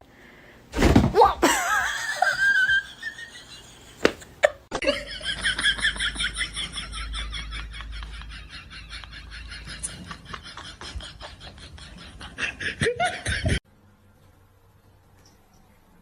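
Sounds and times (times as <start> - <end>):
person laughing: 1.4 - 13.6.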